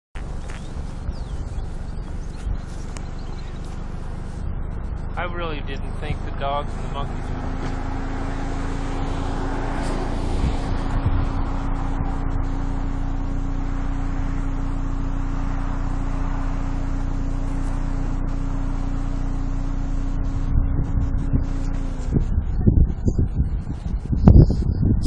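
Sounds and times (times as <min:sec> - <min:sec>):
vehicle engine idling: 0:00.2 - 0:25.0.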